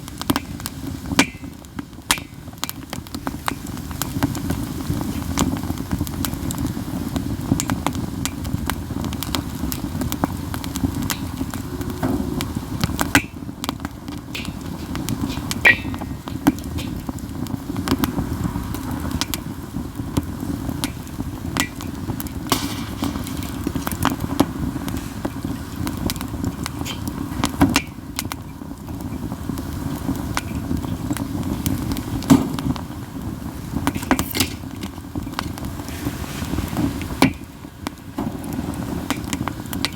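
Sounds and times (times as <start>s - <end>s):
campfire crackling: 0.0s - 39.9s
low rumble of flame: 0.0s - 39.9s
wood popping sharply: 1.2s - 2.8s, 10.9s - 17.6s, 20.8s - 24.9s.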